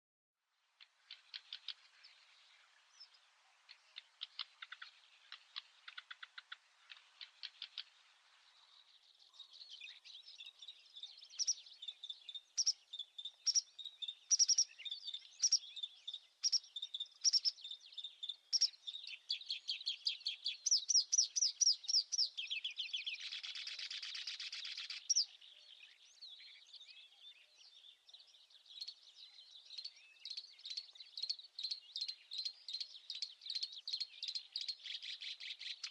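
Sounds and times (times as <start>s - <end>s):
small birds chirping: 0.5s - 35.9s
dry ticks: 0.8s - 1.8s, 3.7s - 7.9s.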